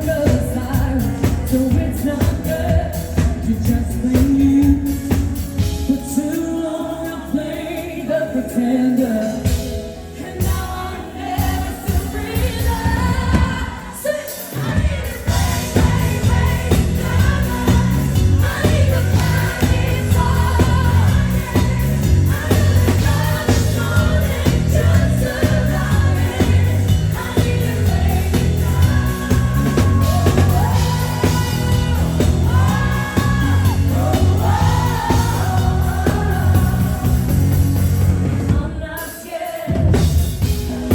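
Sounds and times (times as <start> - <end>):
woman singing pop song: 0.0 - 37.4, 38.5 - 40.9
live band playing: 0.0 - 40.9
steady bass beat: 15.3 - 38.5.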